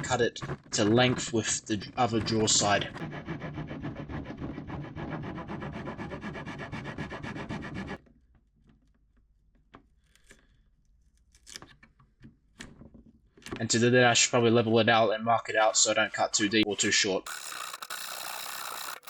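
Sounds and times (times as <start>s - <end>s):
tool rasping wood: 2.0s - 8.0s, 17.2s - 19.0s
faint knocks and handling: 8.1s - 13.6s.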